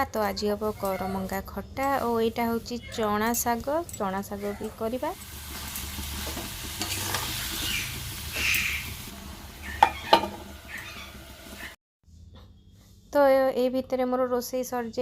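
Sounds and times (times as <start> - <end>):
food sizzling in a pan: 4.4 - 11.8
utensil clinking against pan: 9.8 - 10.4.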